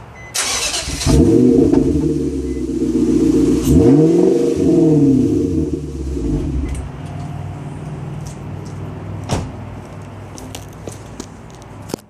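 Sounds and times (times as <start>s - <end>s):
car exhaust idling deeply: 1.0s - 6.8s.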